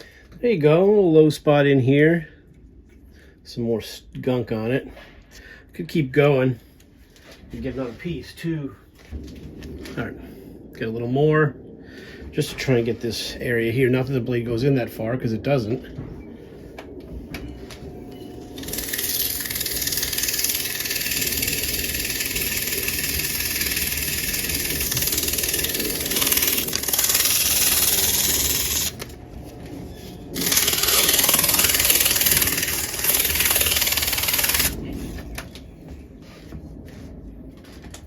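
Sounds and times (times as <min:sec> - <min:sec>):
electric fan motor hum: 0:16.8 - 0:38.0
sandpaper hissing on spinning shaft: 0:18.4 - 0:35.4.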